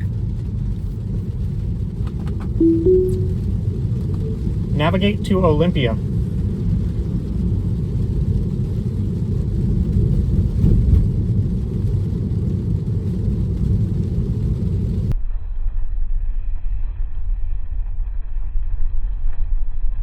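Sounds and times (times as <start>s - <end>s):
tyre and road noise in car: 6.2s - 15.1s.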